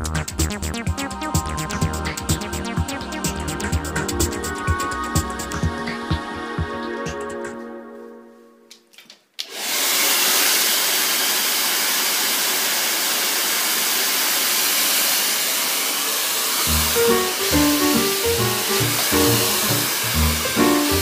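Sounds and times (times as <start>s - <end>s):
background music: 0.0s - 8.9s, 16.7s - 21.0s
hair dryer blowing: 9.4s - 21.0s.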